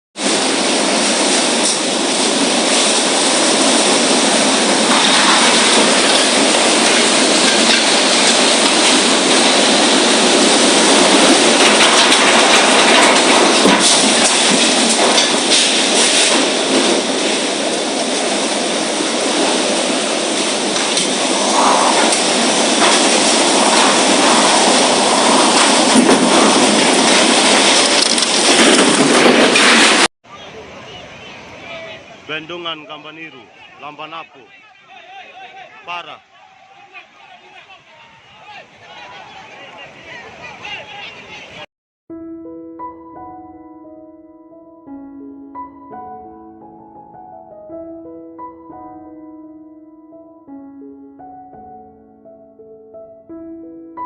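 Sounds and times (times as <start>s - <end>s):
roar of violent storm: 16.4s - 30.1s.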